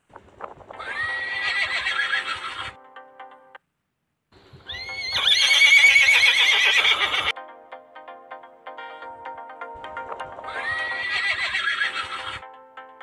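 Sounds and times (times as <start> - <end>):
horse whinnying: 0.8 - 2.8, 4.7 - 7.3, 10.5 - 12.3.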